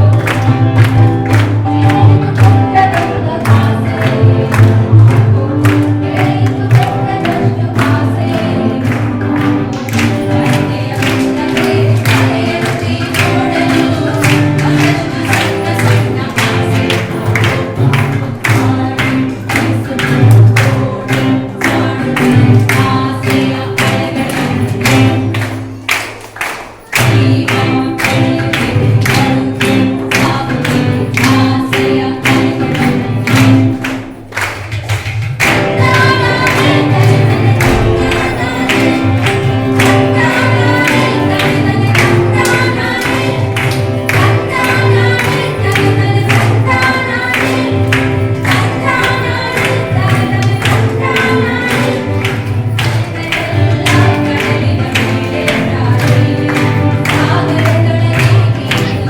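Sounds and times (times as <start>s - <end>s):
fast percussion: 0.0s - 59.0s
group singing: 0.0s - 59.0s.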